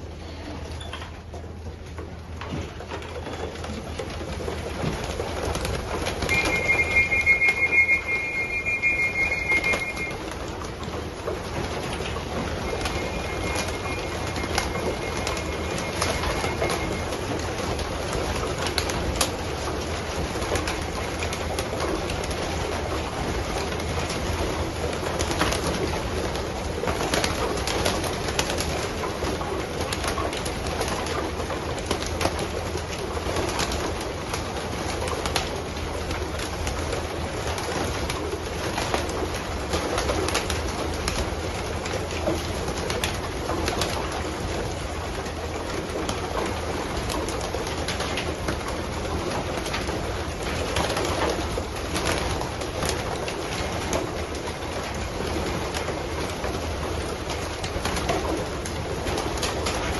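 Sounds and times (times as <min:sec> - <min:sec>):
wings fluttering: 0:03.4 - 0:44.3.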